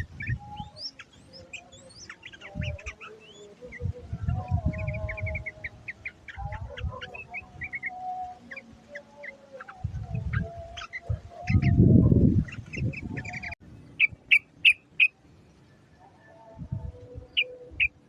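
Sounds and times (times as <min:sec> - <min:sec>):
bird chirps: 0:00.0 - 0:11.8, 0:12.4 - 0:16.4, 0:17.2 - 0:18.0.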